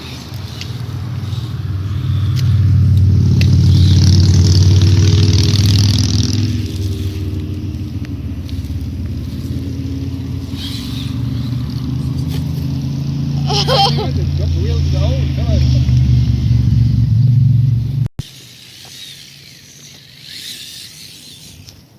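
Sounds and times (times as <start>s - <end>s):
toy truck motors whirring: 0.0s - 5.8s, 6.5s - 9.6s, 10.4s - 12.6s, 13.4s - 14.0s, 18.2s - 21.9s.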